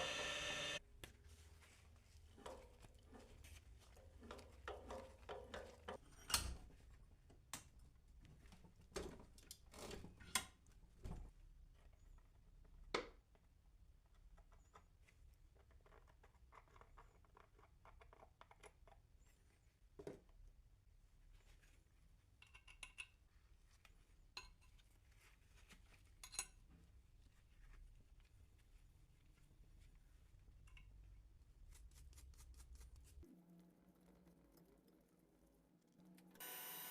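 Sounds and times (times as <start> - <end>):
tools and metal clicking: 22.4 - 23.2.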